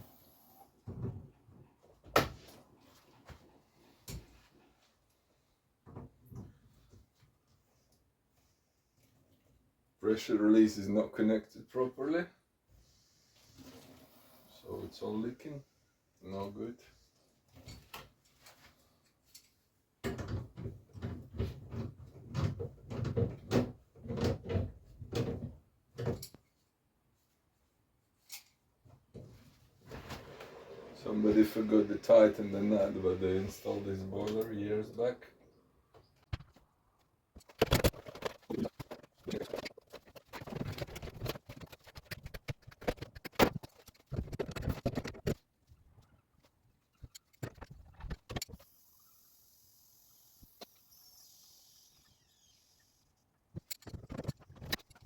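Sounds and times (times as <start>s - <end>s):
knocks and clatter on pipework: 20.0s - 26.4s, 37.4s - 45.4s.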